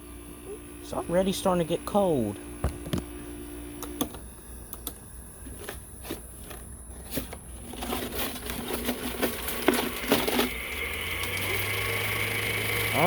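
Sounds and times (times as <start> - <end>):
air conditioner running: 0.0 - 13.0
fan clicking and rattling: 6.4 - 12.2.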